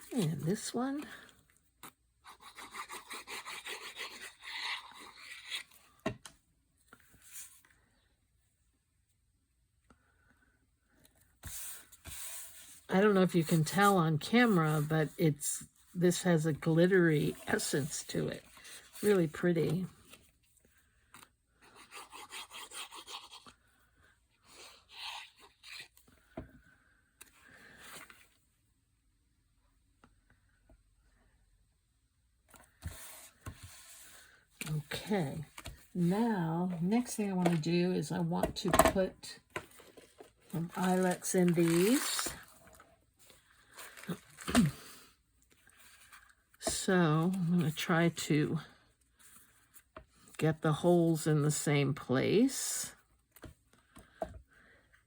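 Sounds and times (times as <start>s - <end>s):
paper scraping and rubbing: 39.7s - 42.6s.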